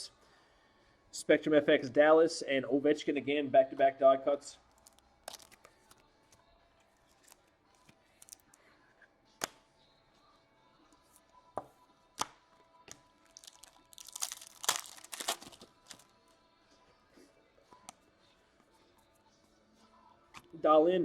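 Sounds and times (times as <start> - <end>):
foil wrapper crinkling: 4.8 - 5.9, 7.1 - 7.4, 8.2 - 8.5, 13.2 - 16.1.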